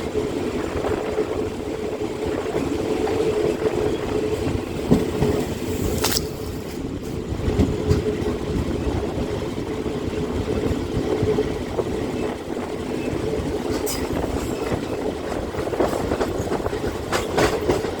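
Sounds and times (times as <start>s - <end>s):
diesel train engine hum: 0.0s - 18.0s
train wheel clicks: 13.5s - 18.0s.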